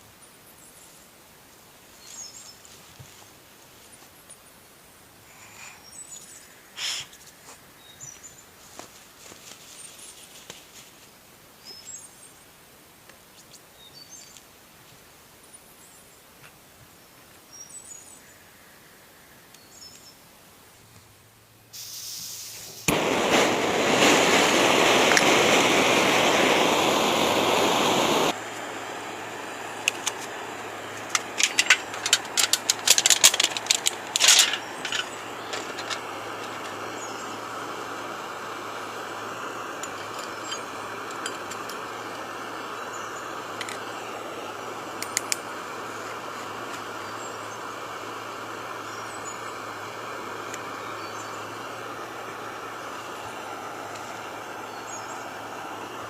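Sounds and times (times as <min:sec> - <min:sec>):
loud steady rushing hiss: 0:00.0 - 0:56.0
faint bird chirps: 0:03.9 - 0:08.5
sharp clicks and clinks: 0:31.0 - 0:36.8, 0:39.8 - 0:41.9.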